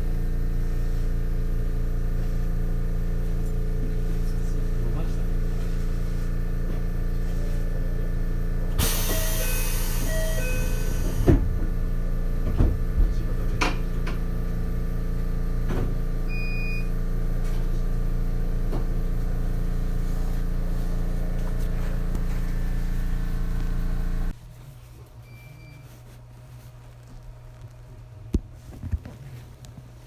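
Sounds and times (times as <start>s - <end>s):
train machinery hum: 8.7s - 14.2s
short high beep: 8.8s - 11.2s.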